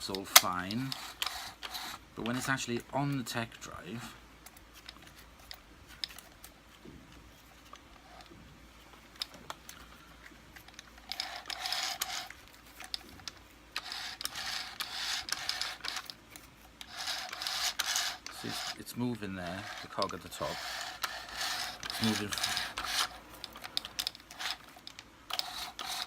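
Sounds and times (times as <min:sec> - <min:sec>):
rattling gear noise: 0:07.5 - 0:26.0
light gear clicks: 0:09.1 - 0:26.0.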